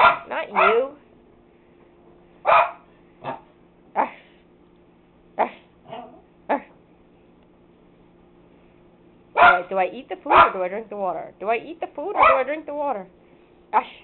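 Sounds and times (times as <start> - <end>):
dog barking: 0.0 - 1.0, 2.4 - 3.5, 9.4 - 9.7, 10.3 - 10.6, 12.2 - 12.5.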